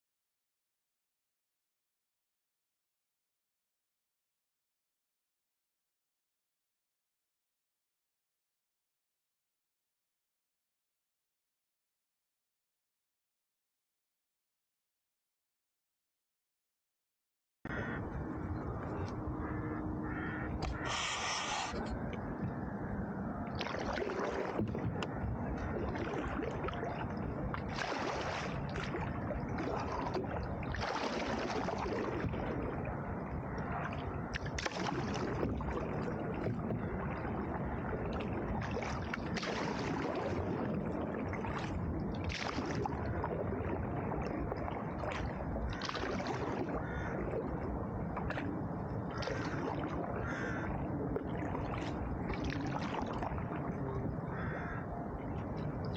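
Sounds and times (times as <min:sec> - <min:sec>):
paddle strokes splashing in water: 0:18.9 - 0:22.3, 0:23.5 - 0:54.9
water wash and air noise: 0:20.6 - 0:21.9.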